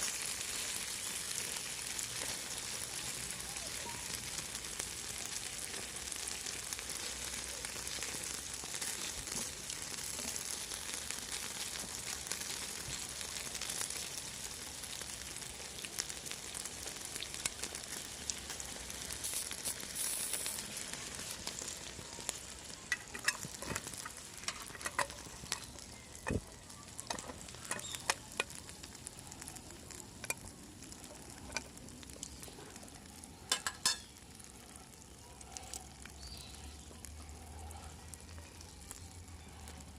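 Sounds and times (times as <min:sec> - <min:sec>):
food sizzling on griddle: 0:00.0 - 0:37.4, 0:38.0 - 0:39.9.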